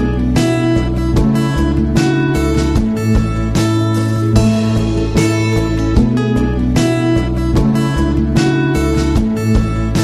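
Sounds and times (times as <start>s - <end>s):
strummed guitar music: 0.0s - 10.0s.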